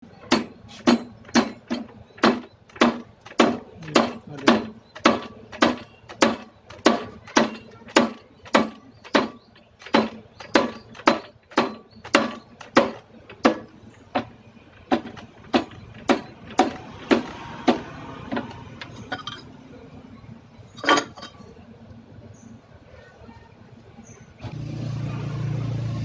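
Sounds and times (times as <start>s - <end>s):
sharp knocks: 0.2s - 19.4s.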